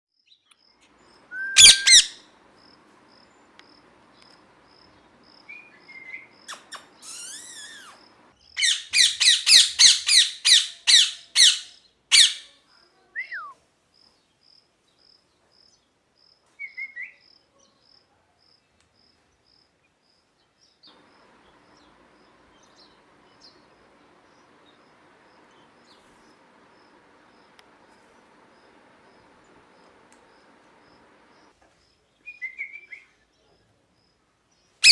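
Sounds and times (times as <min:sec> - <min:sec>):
soft bird chirps: 0:00.2 - 0:12.5, 0:20.4 - 0:33.5, 0:34.6 - 0:34.9
parakeet shrill screeching calls: 0:01.4 - 0:02.2, 0:06.5 - 0:12.5.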